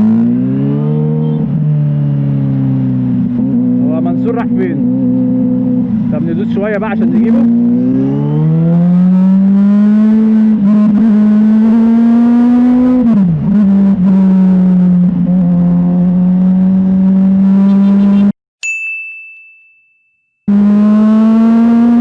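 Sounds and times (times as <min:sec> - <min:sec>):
motorcycle engine at high revs: 0:00.0 - 0:18.3, 0:20.5 - 0:22.0
high bell-like ding: 0:18.6 - 0:20.4.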